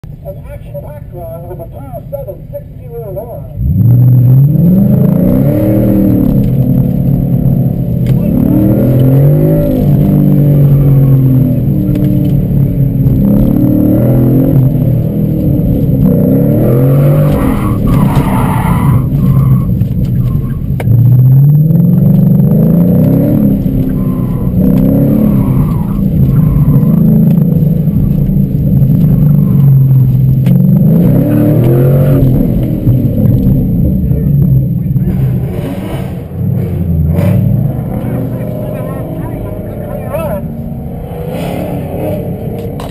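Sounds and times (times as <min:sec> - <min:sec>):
car engine revving: 0:00.0 - 0:42.9
tyres squealing: 0:16.6 - 0:20.7, 0:23.4 - 0:27.7.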